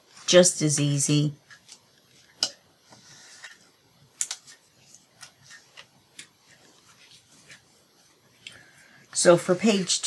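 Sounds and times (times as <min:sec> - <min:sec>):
soft paper rustle: 0:04.3 - 0:08.9.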